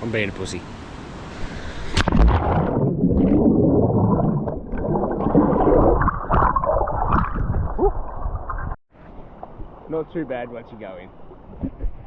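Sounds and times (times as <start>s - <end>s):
person splashing into water: 2.0s - 7.9s
underwater gurgling and bubbling: 2.1s - 8.8s.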